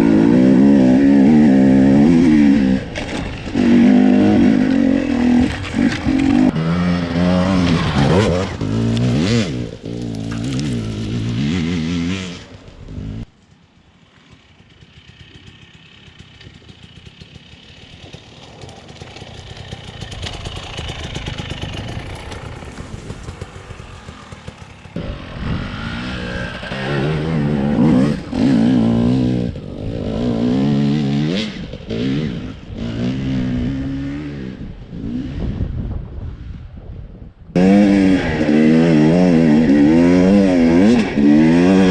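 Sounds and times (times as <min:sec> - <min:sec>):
motorcycle engine revving: 0:00.0 - 0:36.7, 0:37.6 - 0:41.9.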